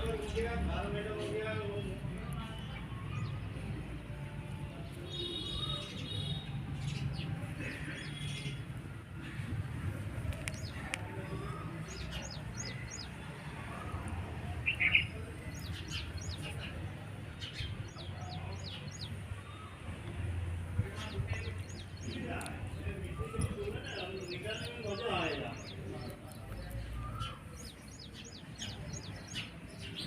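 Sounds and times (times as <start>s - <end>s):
birds chirping: 10.0s - 30.0s.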